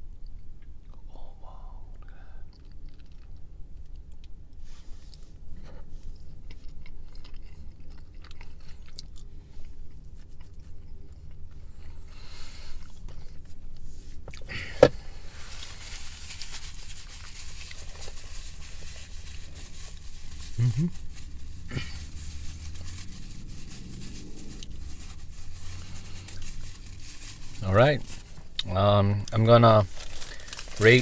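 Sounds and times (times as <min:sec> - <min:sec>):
low room rumble: 0:00.0 - 0:31.0
chewing: 0:02.0 - 0:13.4
rustling: 0:12.4 - 0:28.6, 0:29.3 - 0:31.0.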